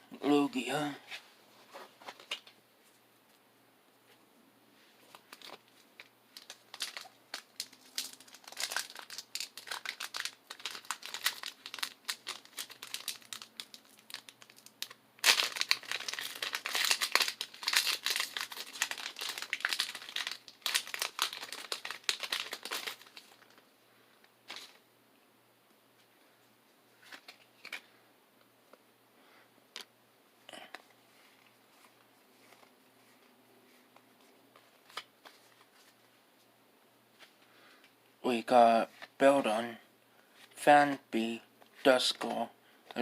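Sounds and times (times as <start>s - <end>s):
foil wrapper crinkling and tearing: 5.2s - 23.6s.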